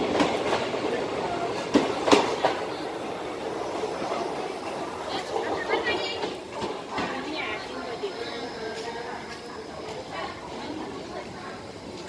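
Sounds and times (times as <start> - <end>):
train wheels clacking over rail joints: 1.6 - 2.8.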